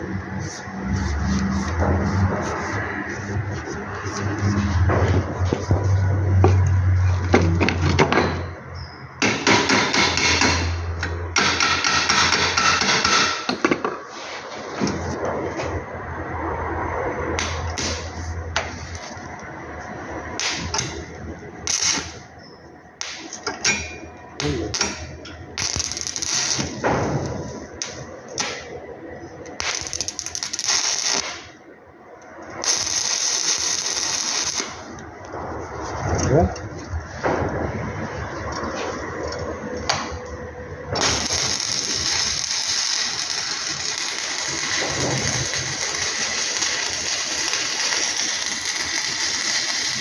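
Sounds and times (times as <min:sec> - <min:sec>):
welding arc crackling: 0:00.0 - 0:07.3, 0:15.0 - 0:22.4, 0:23.0 - 0:23.5, 0:24.1 - 0:36.0, 0:40.9 - 0:50.0
welding machine hum: 0:00.0 - 0:08.0, 0:15.0 - 0:36.0, 0:37.7 - 0:50.0.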